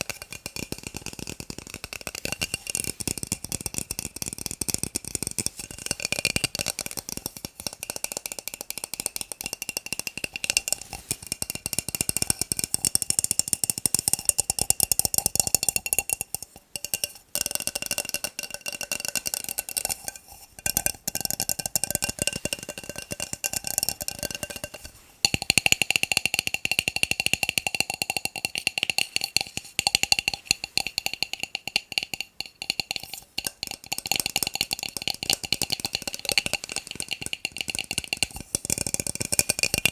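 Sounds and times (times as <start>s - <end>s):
tapping on plastic cups: 0.0s - 39.9s.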